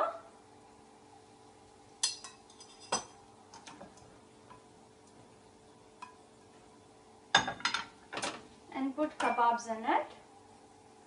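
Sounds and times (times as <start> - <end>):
faint steady hum: 0.0 - 11.0
metal spoon clinking on kitchenware: 2.0 - 3.2.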